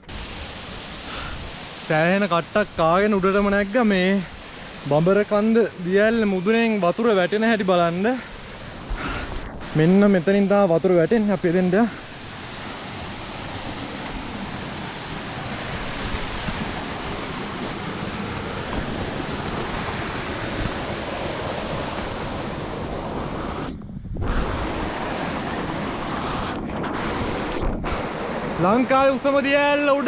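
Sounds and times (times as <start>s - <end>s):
waterfall rushing: 0.0s - 30.0s
wind on microphone: 8.3s - 10.5s, 11.1s - 29.2s.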